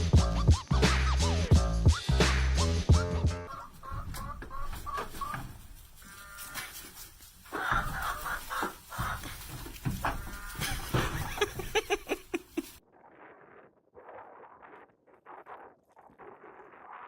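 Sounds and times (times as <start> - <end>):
goat bleating: 3.5 - 12.8.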